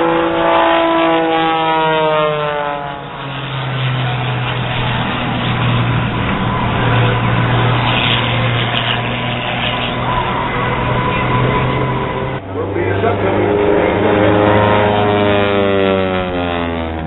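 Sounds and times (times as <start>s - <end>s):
airplane engine drone: 0.0s - 17.0s
broad rush of noise: 3.8s - 17.0s.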